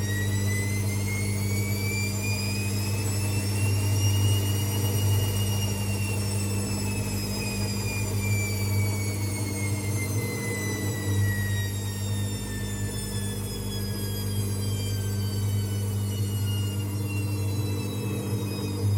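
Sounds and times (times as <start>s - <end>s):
washing machine whine falling: 0.0s - 18.9s.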